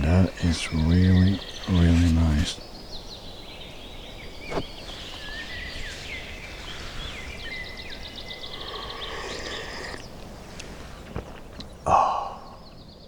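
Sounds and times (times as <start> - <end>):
bird trill: 0.0 - 10.2
songbirds singing: 0.0 - 13.0.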